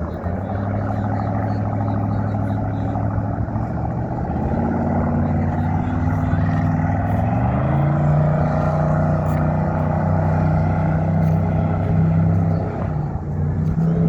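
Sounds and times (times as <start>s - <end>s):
motorboat engine running: 0.0s - 14.0s.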